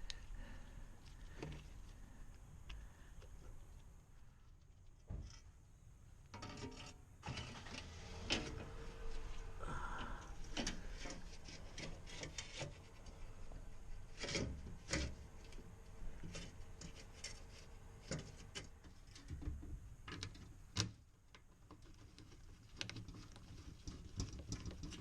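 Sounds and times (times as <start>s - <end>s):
rubbing and scraping: 6.4s - 9.6s, 10.4s - 19.4s, 21.7s - 25.0s.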